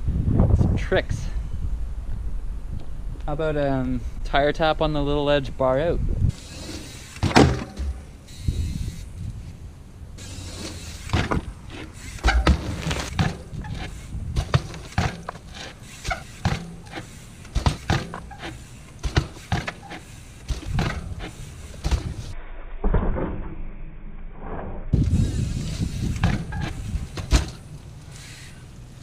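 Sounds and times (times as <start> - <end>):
bike knocking and clattering: 6.3 - 9.1, 10.2 - 22.3, 25.0 - 29.0.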